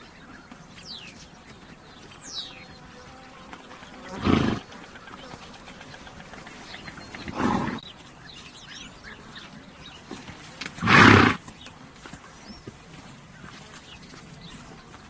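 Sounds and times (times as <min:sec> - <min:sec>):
horse snorting: 0:04.0 - 0:04.7, 0:06.0 - 0:07.8, 0:10.2 - 0:11.5.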